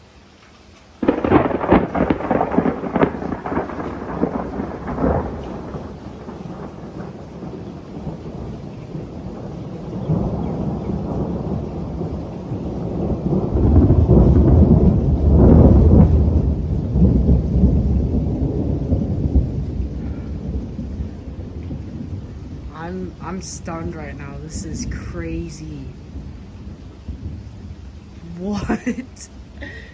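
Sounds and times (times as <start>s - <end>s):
steady rain: 0.0s - 29.9s
thunder rumbling: 1.0s - 29.9s.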